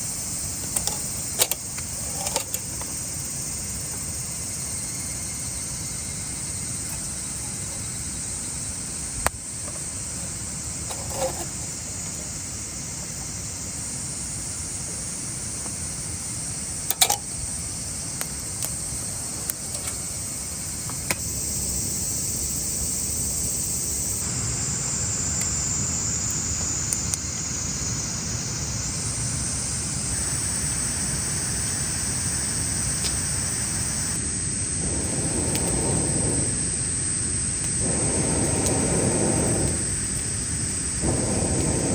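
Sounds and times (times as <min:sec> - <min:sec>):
high-pitched insect chorus: 0:00.0 - 0:41.9
sharp clicks: 0:00.6 - 0:03.0.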